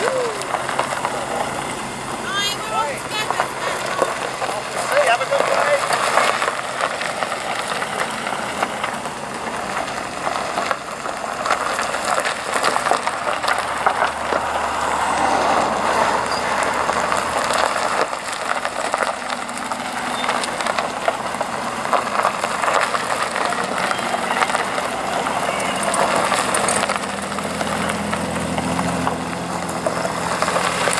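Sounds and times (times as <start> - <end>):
low engine hum: 0.0 - 30.9
outdoor noise: 0.0 - 30.9.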